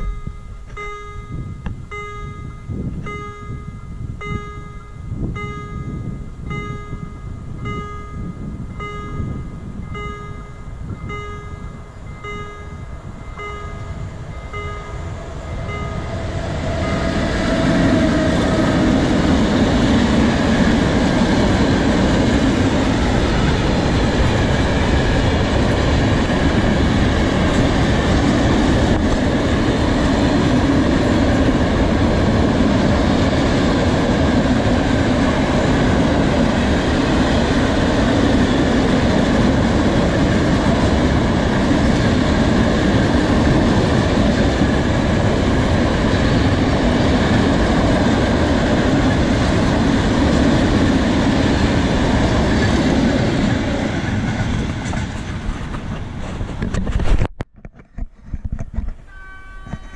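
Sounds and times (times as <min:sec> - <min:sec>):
level crossing bell dinging: 0:00.0 - 0:15.0, 0:59.1 - 0:59.9
freight train rumbling past: 0:00.0 - 0:57.1.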